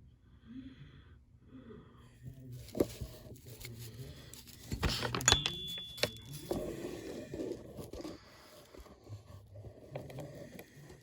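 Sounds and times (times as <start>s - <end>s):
scraping and rustling: 2.5s - 11.0s
sharp clink: 5.3s - 6.4s.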